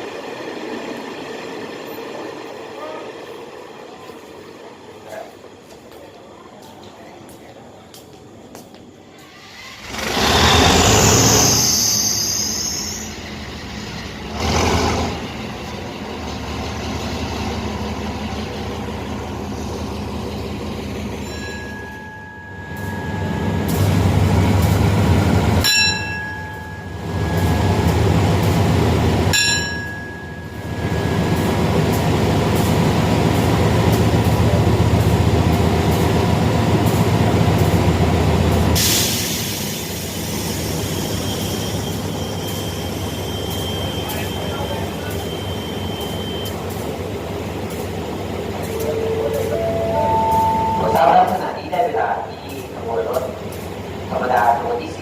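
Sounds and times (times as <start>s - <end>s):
diesel train engine rumble: 0.0s - 55.0s
train wheels rolling: 0.0s - 55.0s
short high-pitched tones: 48.7s - 51.2s.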